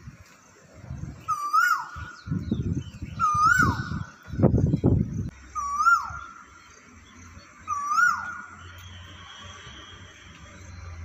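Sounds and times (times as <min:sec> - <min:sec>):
bird whistled call: 0:01.2 - 0:04.2, 0:05.6 - 0:06.4, 0:07.6 - 0:10.9.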